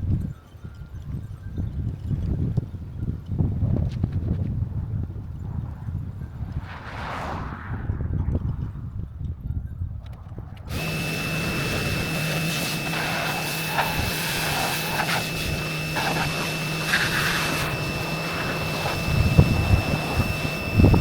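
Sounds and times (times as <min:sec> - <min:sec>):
pressure washer running: 0:10.7 - 0:21.0
water spray hissing: 0:10.7 - 0:21.0.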